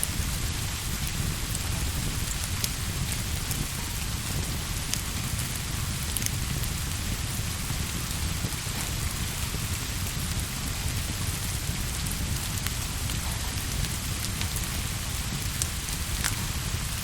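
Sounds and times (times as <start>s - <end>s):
rain hiss: 0.0s - 17.0s.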